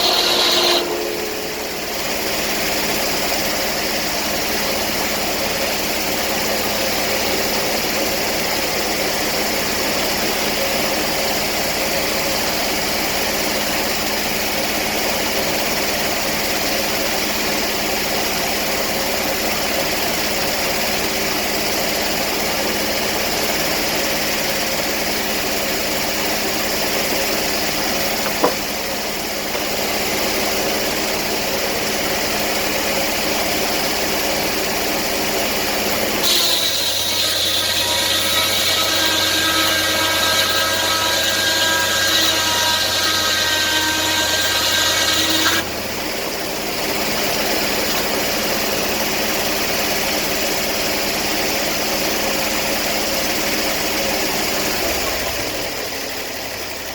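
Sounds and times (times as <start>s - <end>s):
high whine with steady tones: 0.0s - 3.8s
sawmill engine running: 0.0s - 56.9s.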